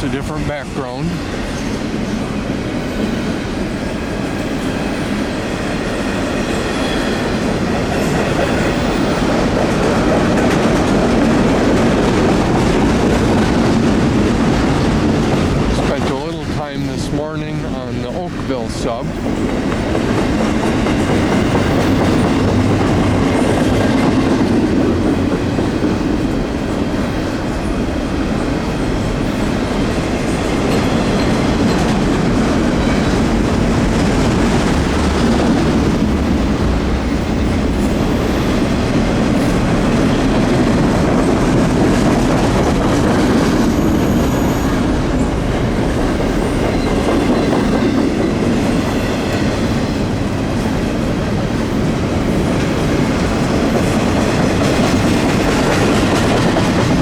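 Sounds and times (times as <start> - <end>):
freight train rumbling past: 0.0 - 57.0
wheels clacking over rails: 4.1 - 57.0.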